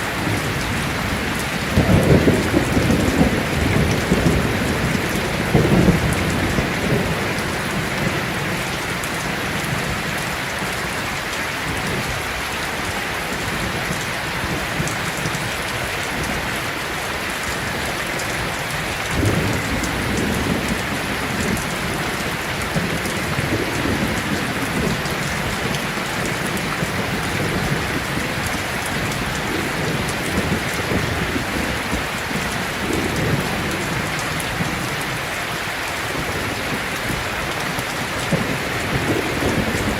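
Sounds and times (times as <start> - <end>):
thunder rumbling: 0.0 - 10.8, 18.8 - 35.3, 36.1 - 39.9
heavy rain falling: 0.0 - 39.9.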